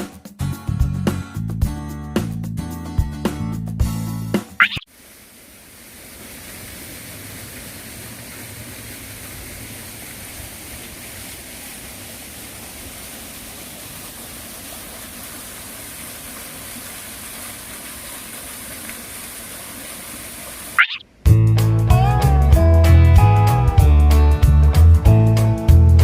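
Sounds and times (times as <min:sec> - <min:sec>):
guitar music: 0:21.3 - 0:25.7.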